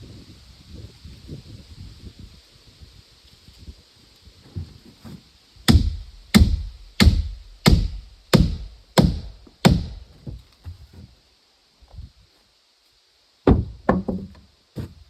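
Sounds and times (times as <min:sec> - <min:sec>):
tool striking wood: 0:05.7 - 0:10.0, 0:13.5 - 0:14.4.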